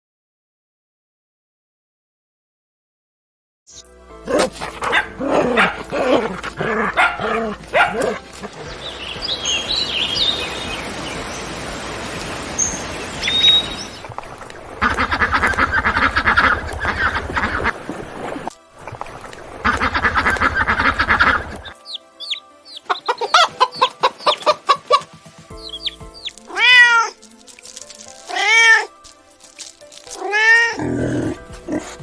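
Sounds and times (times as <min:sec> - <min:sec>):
animal calls: 0:04.3 - 0:11.0, 0:14.8 - 0:17.8, 0:19.6 - 0:27.2, 0:28.1 - 0:29.0, 0:30.1 - 0:32.0
high chirps: 0:08.6 - 0:14.1, 0:21.6 - 0:26.4
steady hiss: 0:08.8 - 0:14.8.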